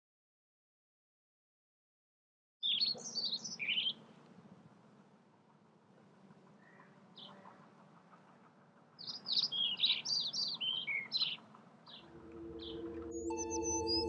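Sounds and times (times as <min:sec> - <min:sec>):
small bird chirping: 0:02.6 - 0:04.1, 0:06.6 - 0:14.0
low music drone: 0:12.0 - 0:14.0.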